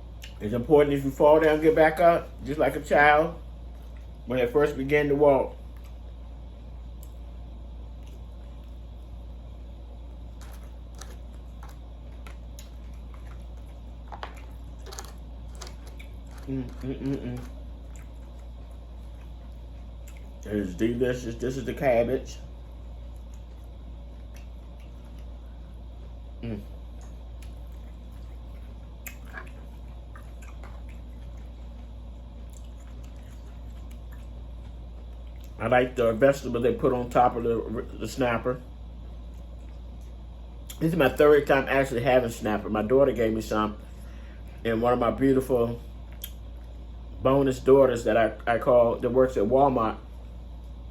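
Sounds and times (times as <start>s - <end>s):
steady low hum: 0.0s - 50.9s
soft chewing and mouth clicks: 0.1s - 0.4s, 3.7s - 4.3s, 5.6s - 20.5s, 22.4s - 35.6s, 38.9s - 40.8s, 45.9s - 46.9s.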